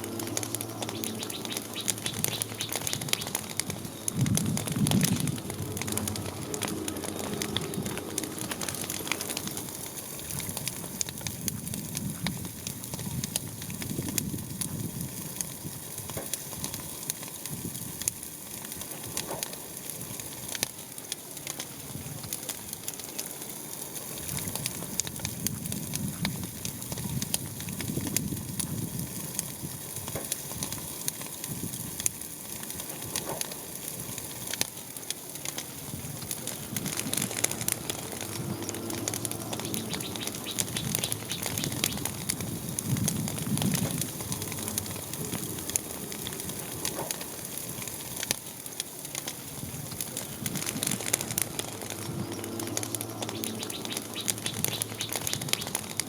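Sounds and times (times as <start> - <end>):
dense crackling: 0.0 - 56.0
soft low swells: 36.6 - 47.7.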